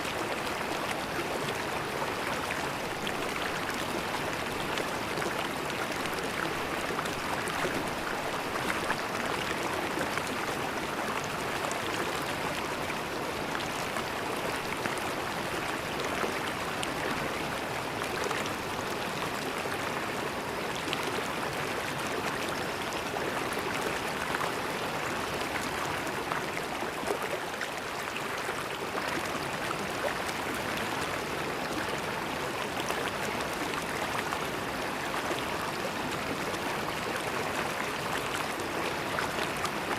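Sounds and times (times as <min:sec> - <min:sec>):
river gurgling over stones: 0:00.0 - 0:39.9.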